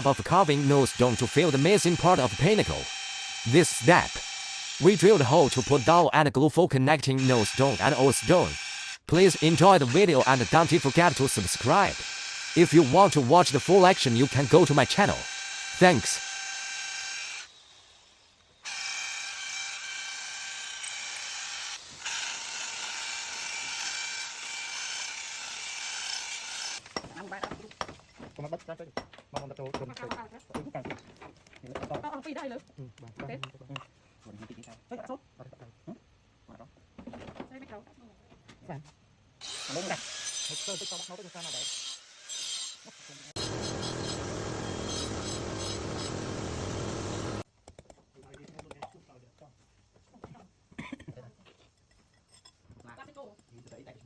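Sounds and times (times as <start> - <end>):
electric drill whining: 0.0 - 6.0, 7.2 - 26.8, 39.4 - 40.7, 41.4 - 47.4.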